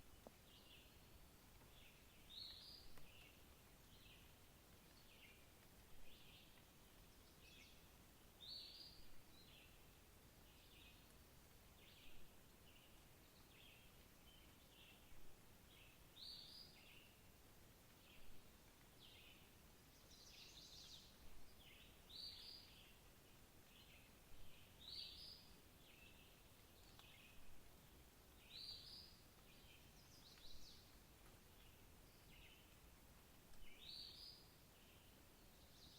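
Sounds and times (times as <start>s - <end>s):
faint background hiss: 0.0s - 35.9s.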